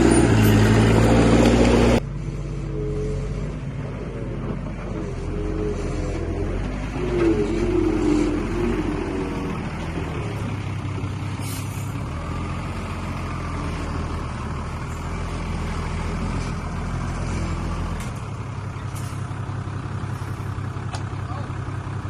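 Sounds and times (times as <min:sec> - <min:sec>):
heavy diesel engine droning: 0:00.0 - 0:22.0.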